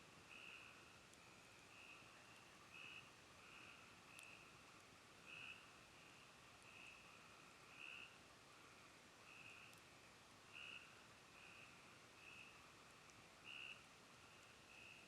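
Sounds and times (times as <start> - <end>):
faint clicks: 3.5 - 4.9, 9.5 - 9.9, 12.2 - 15.0.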